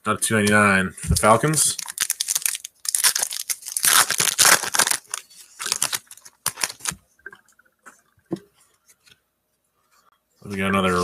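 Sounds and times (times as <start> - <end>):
cards rustling: 1.2 - 7.0.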